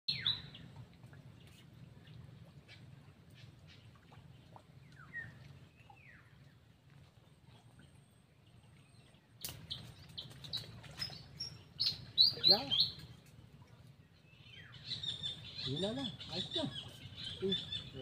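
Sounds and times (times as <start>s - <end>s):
sharp bird chirps and clicks: 9.4s - 13.4s.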